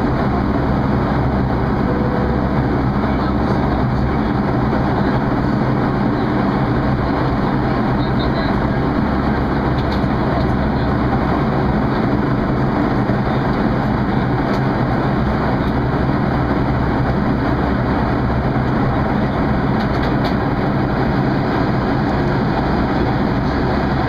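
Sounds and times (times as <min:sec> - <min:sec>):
airliner cabin engine and air noise: 0:00.0 - 0:24.0
low hum: 0:01.5 - 0:04.6.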